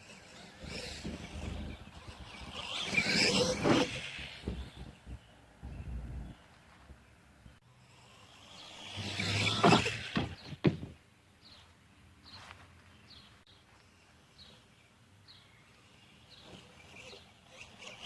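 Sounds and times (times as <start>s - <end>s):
toy truck motor whine: 0.0s - 4.3s, 15.8s - 18.0s
bird chirping: 0.1s - 7.6s, 8.4s - 18.0s.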